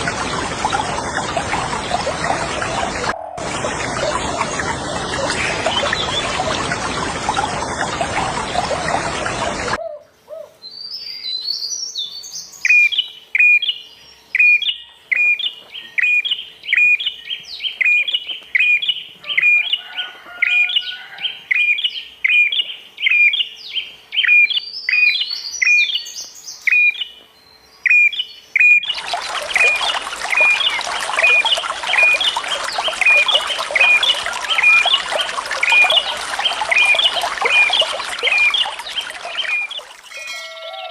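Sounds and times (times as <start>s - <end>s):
running water: 0.0s - 9.8s, 28.8s - 40.6s.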